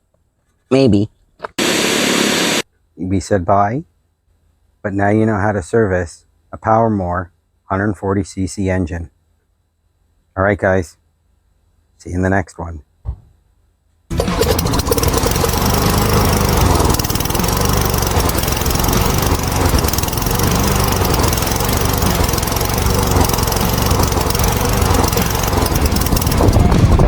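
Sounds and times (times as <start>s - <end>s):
lawnmower engine running: 14.1s - 27.0s.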